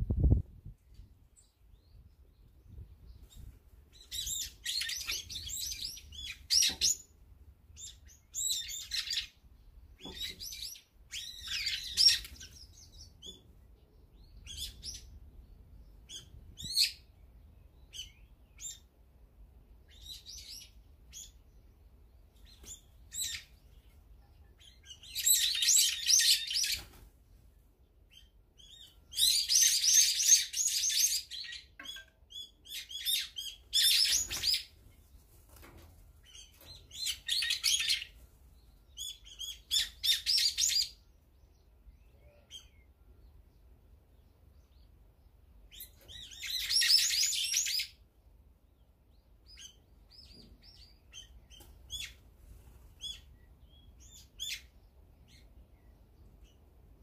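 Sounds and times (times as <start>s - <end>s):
songbirds chirping: 0.1s - 57.0s
dense shrill bird calling: 28.2s - 34.7s, 45.7s - 48.0s.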